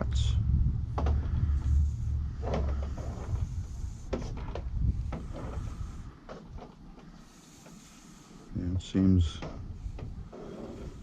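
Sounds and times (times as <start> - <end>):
low rumble: 0.0 - 6.3
light knocks and rustles: 0.9 - 8.1, 9.2 - 11.0.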